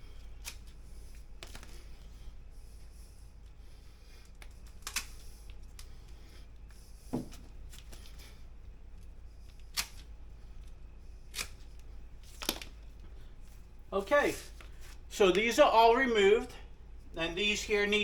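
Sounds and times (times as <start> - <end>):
hand clippers snipping: 11.3 - 11.6.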